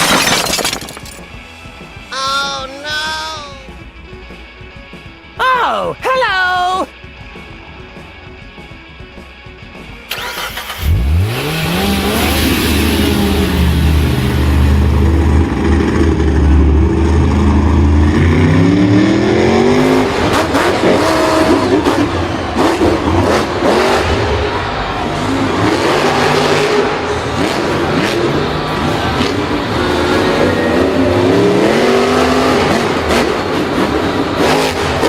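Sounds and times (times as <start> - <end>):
vehicle engine starting and revving: 10.0 - 35.0.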